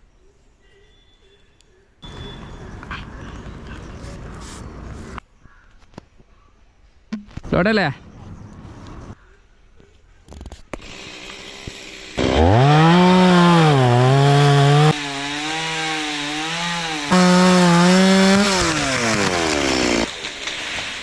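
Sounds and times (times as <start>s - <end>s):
chainsaw cutting a branch: 10.8s - 21.0s.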